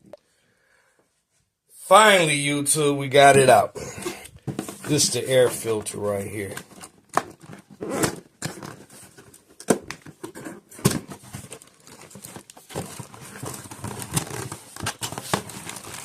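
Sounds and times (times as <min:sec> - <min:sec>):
packaging crinkling and rustling: 0:04.4 - 0:16.0.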